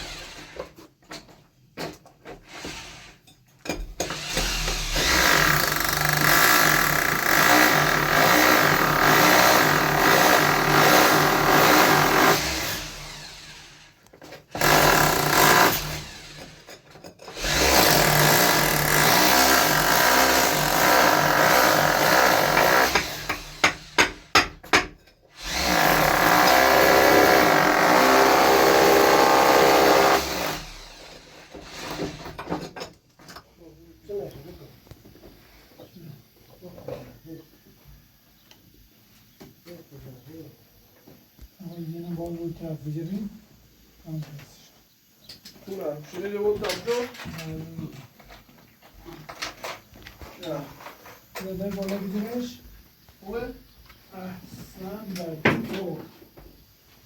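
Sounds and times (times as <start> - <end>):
power drill running: 0.0 - 0.6, 4.0 - 16.7, 17.3 - 24.4, 25.3 - 32.4.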